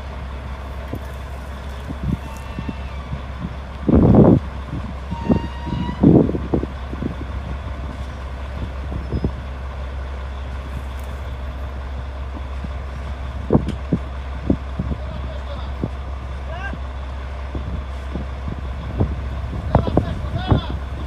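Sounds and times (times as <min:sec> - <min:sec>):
diesel machinery droning: 0:00.0 - 0:21.0.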